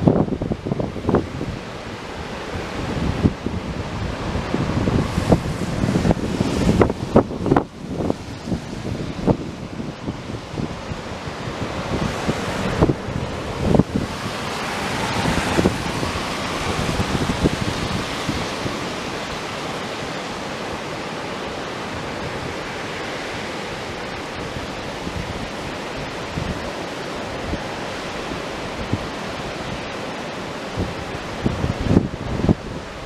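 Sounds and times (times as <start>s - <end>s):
river rushing: 0.0s - 33.0s
wind buffeting microphone: 0.0s - 33.0s.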